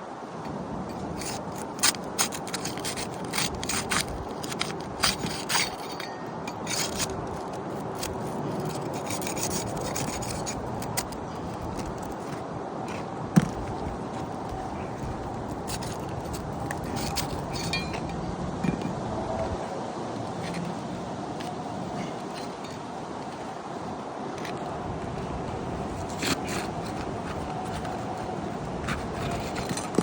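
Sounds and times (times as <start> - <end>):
metal tool scraping shingles: 0.9 - 12.4, 15.0 - 18.2.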